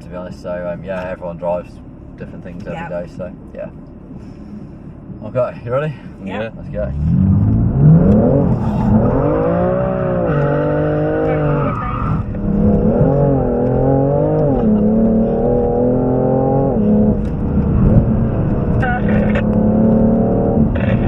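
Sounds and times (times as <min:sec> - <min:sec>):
car engine revving and accelerating: 0:06.4 - 0:21.0.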